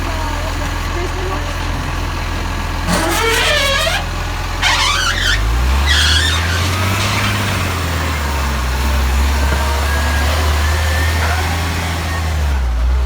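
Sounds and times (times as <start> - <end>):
garbage truck diesel engine: 0.0 - 13.0
high-pitched wavering squeals: 2.9 - 6.7.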